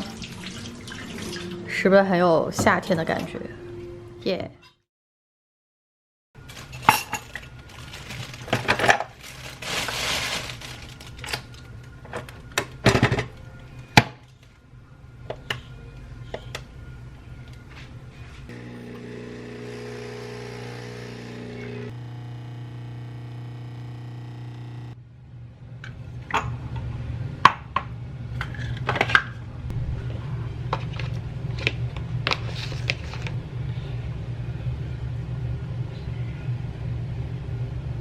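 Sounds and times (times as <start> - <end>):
kitchen items clicking and knocking: 6.5 - 13.4
steady low hum: 15.9 - 28.3.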